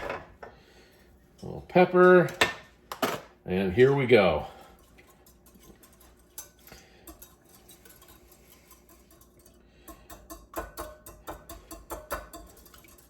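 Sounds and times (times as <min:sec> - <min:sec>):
whisk tapping against bowl: 0:04.8 - 0:13.0.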